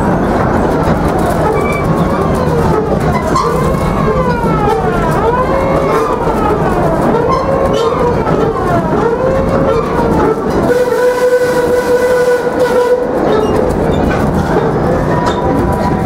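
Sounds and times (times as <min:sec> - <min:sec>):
steam train rumbling: 0:00.0 - 0:16.0.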